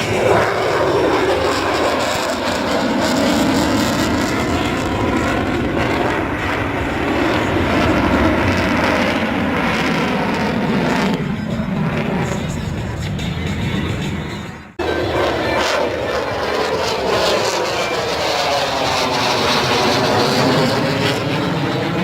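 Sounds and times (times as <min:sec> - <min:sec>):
fighter jet engine roar: 0:00.0 - 0:22.0.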